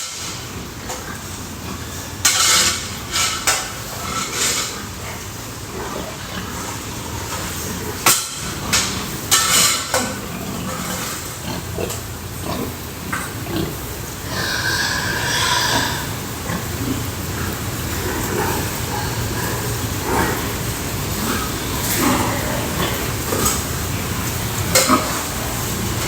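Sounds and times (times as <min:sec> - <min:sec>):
pigs grunting: 0:00.0 - 0:26.0
pig squealing: 0:09.4 - 0:23.6.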